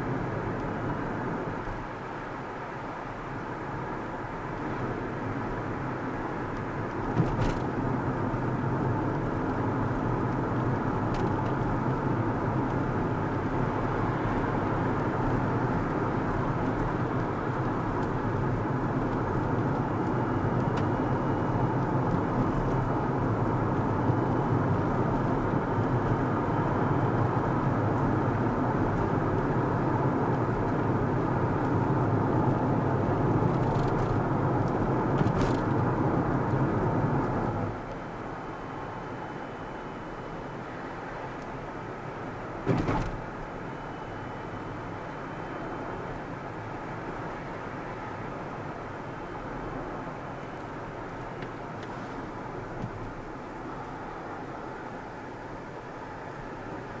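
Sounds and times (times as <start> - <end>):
car driving on road: 0.0 - 57.0.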